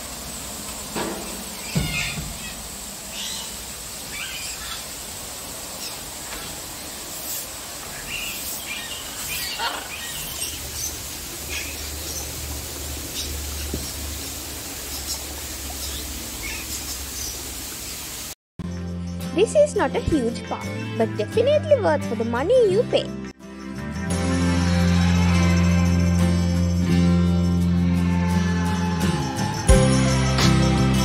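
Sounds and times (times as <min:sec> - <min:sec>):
birds chirping and calling: 0:01.5 - 0:05.0, 0:07.8 - 0:18.0
high-pitched background whine: 0:23.8 - 0:27.8.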